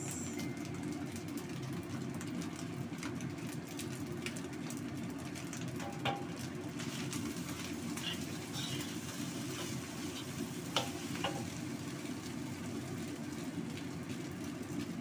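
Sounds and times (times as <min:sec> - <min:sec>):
rice sizzling in a wok: 0:00.0 - 0:15.0
spatula stirring and scraping: 0:06.8 - 0:11.5.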